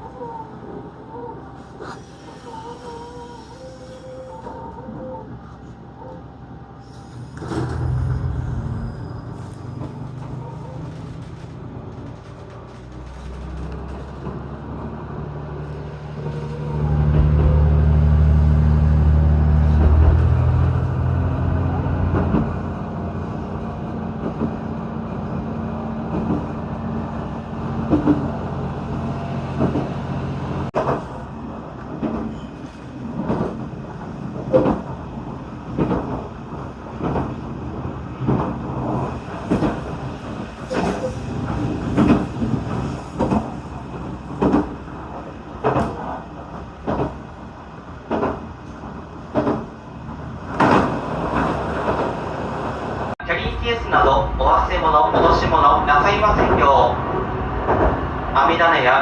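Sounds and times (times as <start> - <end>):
diesel railcar engine running: 0.0 - 59.0
train wheels clicking over rail joints: 31.8 - 52.7.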